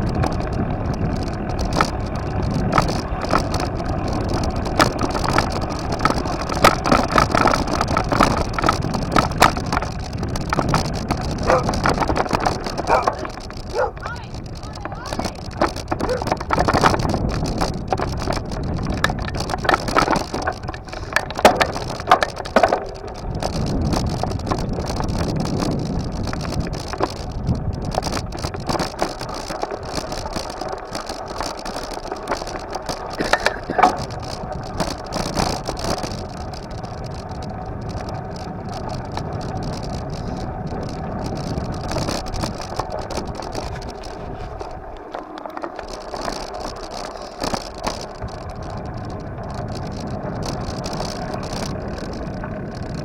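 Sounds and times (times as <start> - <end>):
bike rattles and knocks: 0.0 - 53.0
bike rolling road noise: 0.0 - 53.0.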